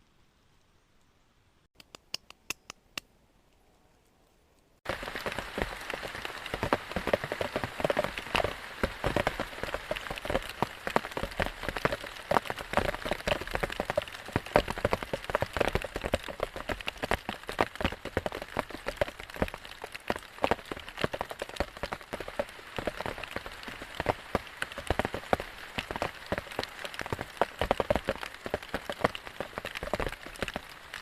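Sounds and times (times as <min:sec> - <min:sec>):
close raindrop impacts: 0:04.2 - 0:31.0
heavy rain falling: 0:04.9 - 0:31.0.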